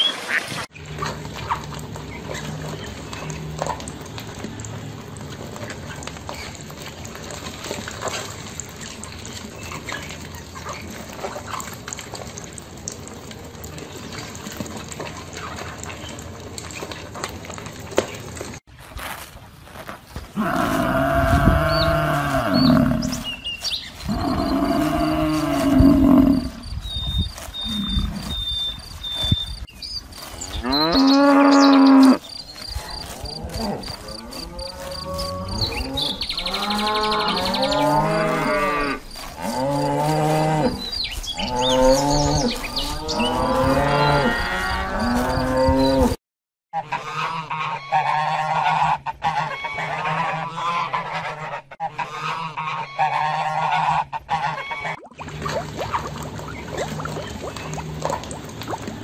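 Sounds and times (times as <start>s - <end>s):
cattle mooing: 20.4s - 23.3s, 24.0s - 26.6s, 30.6s - 32.2s, 32.9s - 46.2s.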